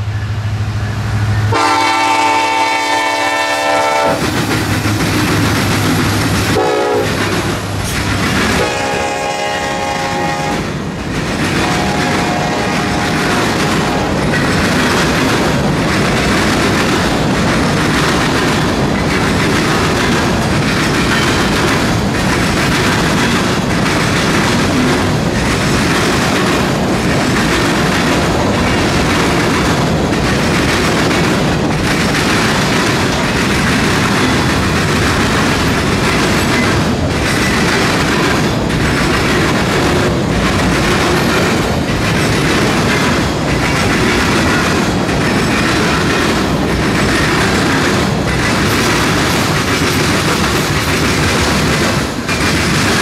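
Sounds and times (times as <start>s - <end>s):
locomotive multi-note horn: 1.0s - 4.2s, 6.6s - 7.2s, 8.6s - 10.7s, 11.6s - 14.1s
wheels clicking over rail joints: 3.4s - 9.2s, 10.4s - 53.0s.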